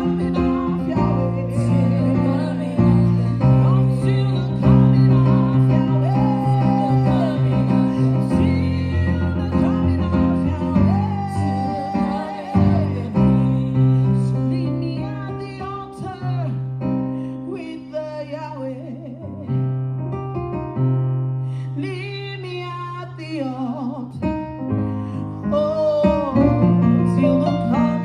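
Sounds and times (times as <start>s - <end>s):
person singing: 0.0s - 16.6s.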